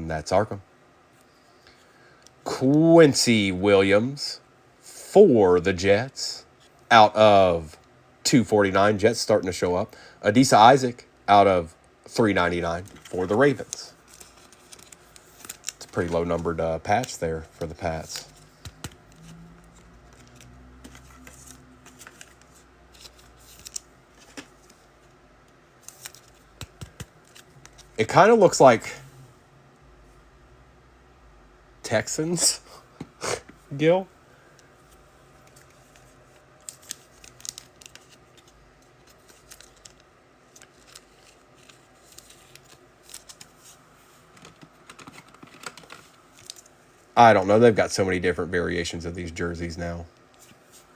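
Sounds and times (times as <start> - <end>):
cards and wrappers rustling: 12.2 - 25.1, 25.8 - 28.9, 34.4 - 46.7.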